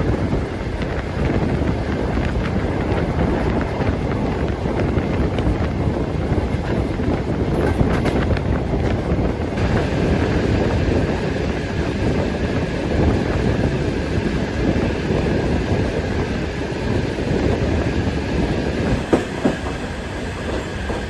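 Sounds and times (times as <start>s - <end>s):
train wheels rumbling on track: 0.0s - 21.0s
wind on microphone: 0.0s - 21.0s.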